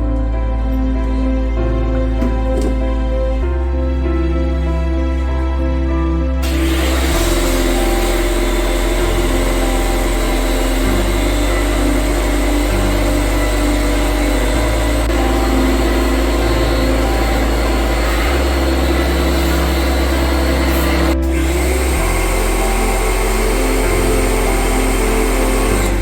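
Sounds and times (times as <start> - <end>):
background music: 0.0 - 26.0
pressure washer spraying: 6.4 - 26.0.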